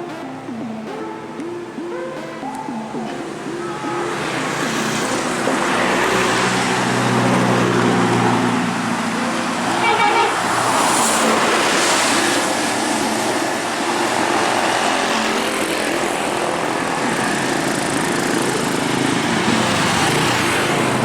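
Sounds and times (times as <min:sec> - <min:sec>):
heavy vehicle engine labouring: 0:00.0 - 0:21.0
short horn toot: 0:09.8 - 0:10.5.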